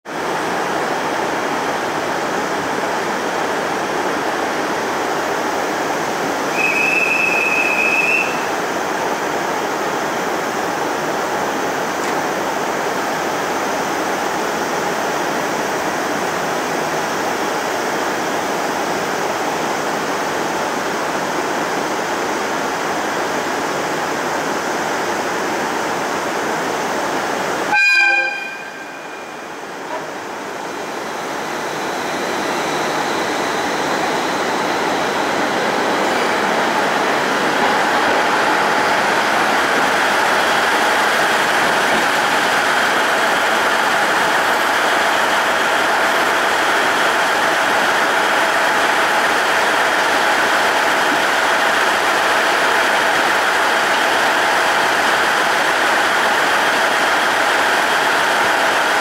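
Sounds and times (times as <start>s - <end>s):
electric train rushing noise: 0.1s - 59.0s
high-pitched tone signal: 27.7s - 29.6s.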